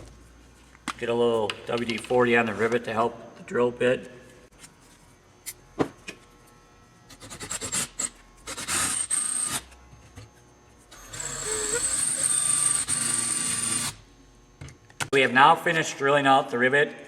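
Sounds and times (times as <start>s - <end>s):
electric drill boring metal: 6.3s - 14.1s
drill clicks: 10.9s - 14.0s.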